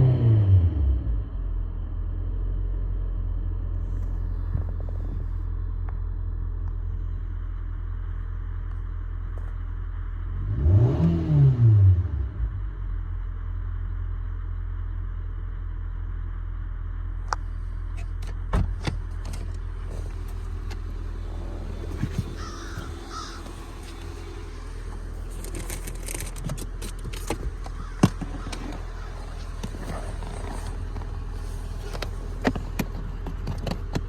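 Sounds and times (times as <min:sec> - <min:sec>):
steady low hum: 0:12.3 - 0:34.0
bird calling: 0:20.1 - 0:26.3, 0:26.9 - 0:32.3.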